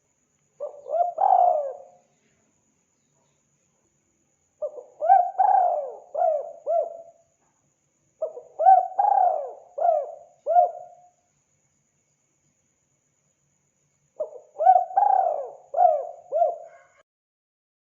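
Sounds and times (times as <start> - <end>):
dove cooing: 0.6 - 2.0, 4.6 - 7.2, 8.2 - 11.0, 14.2 - 17.0.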